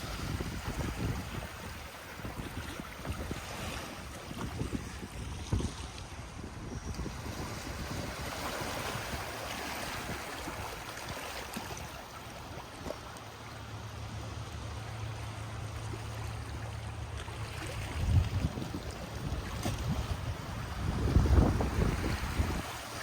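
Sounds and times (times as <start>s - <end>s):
wind buffeting microphone: 0.0s - 11.2s, 17.6s - 23.0s
waves washing onto shore: 0.0s - 23.0s.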